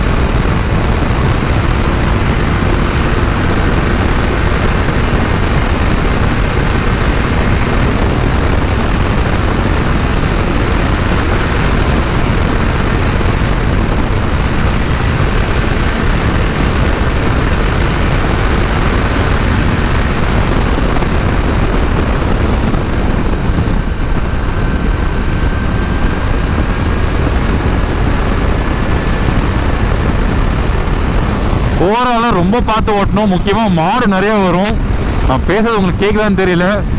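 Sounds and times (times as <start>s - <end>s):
faint whine: 0.0s - 36.9s
motorcycle engine running: 0.0s - 36.9s
wind rush on microphone: 0.0s - 36.9s.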